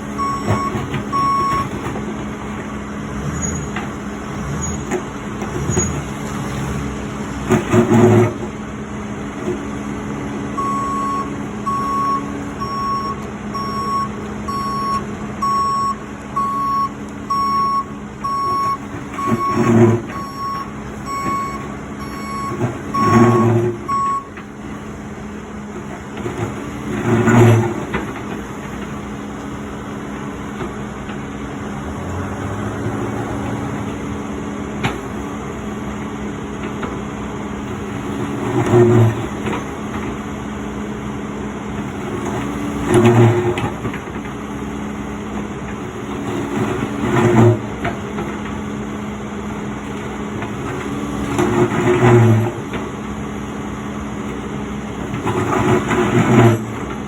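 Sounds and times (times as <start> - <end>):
engine hum: 0.0 - 57.0
reversing alarm beeping: 0.1 - 1.8, 10.5 - 24.4.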